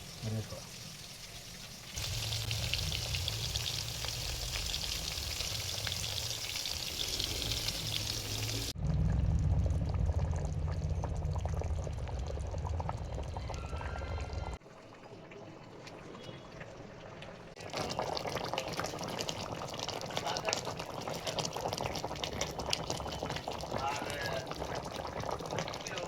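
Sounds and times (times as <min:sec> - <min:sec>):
cooking pan hissing: 0:00.0 - 0:08.8
low rumble: 0:02.0 - 0:14.6.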